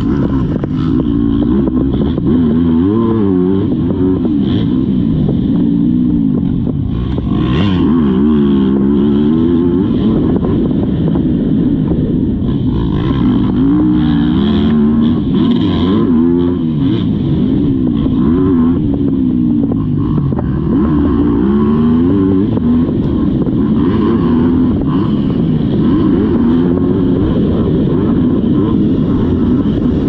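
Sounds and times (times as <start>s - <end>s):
motocross bike engine revving: 0.0s - 30.0s.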